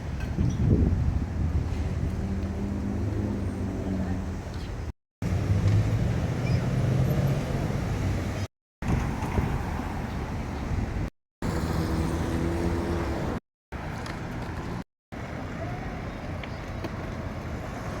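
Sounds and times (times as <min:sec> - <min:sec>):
low rumble of passing vehicles: 0:00.0 - 0:18.0.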